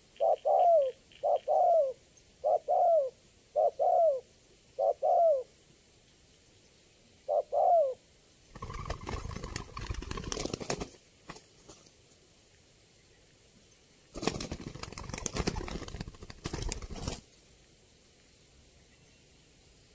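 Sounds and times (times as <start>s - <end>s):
dove cooing: 0.0s - 5.5s, 7.3s - 8.0s.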